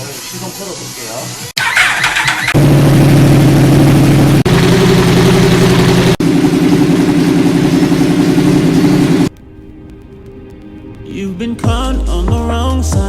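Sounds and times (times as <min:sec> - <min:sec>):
motorcycle engine idling: 0:01.6 - 0:09.3.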